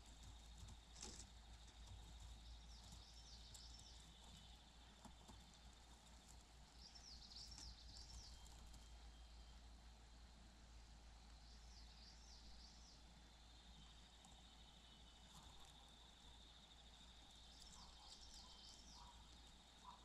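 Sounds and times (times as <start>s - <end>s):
low background hum: 0.0s - 20.0s
faint high bird chirps: 1.0s - 9.8s, 11.2s - 20.0s
pulsing insect-like trill: 13.4s - 20.0s.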